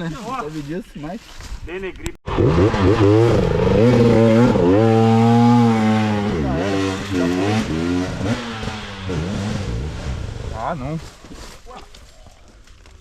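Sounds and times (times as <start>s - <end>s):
dirt bike engine revving: 2.3s - 10.7s.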